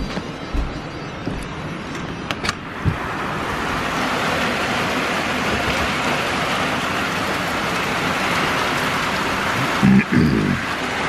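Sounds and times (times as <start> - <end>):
steady rain: 2.5 - 11.0.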